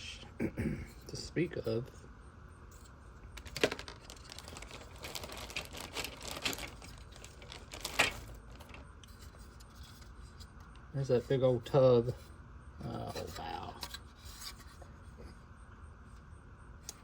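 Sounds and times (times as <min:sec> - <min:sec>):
plastic bags crinkling: 0:03.3 - 0:10.1.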